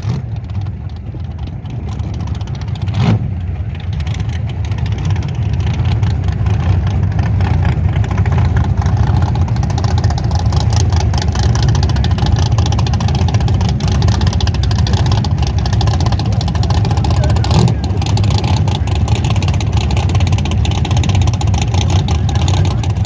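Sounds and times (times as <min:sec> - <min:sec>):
drag-racing car engine rumbling: 0:00.0 - 0:23.0.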